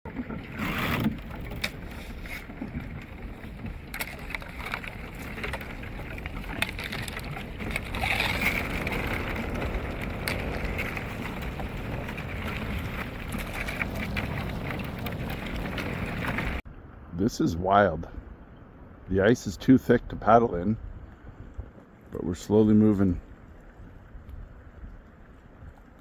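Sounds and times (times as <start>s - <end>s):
ice chunks crunching against canoe: 0.1s - 16.6s
small ice clicks and knocks: 0.1s - 16.6s.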